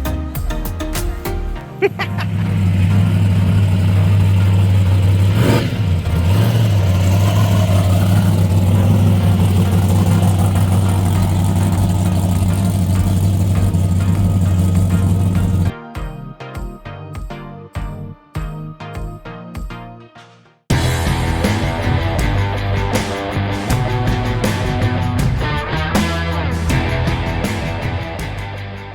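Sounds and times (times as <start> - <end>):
vehicle engine running loudly: 2.2 - 15.7, 20.7 - 28.7.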